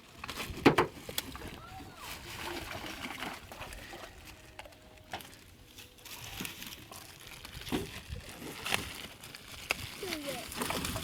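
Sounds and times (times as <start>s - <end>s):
plastic bags crinkling: 4.2s - 11.0s.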